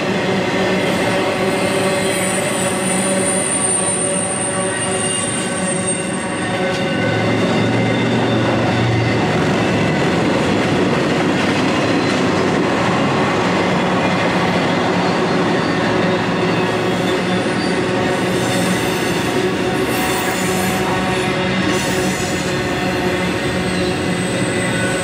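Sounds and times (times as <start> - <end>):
train wheels rumbling on rail: 0.0 - 25.0
high wheel squeal: 0.8 - 9.9, 14.9 - 25.0.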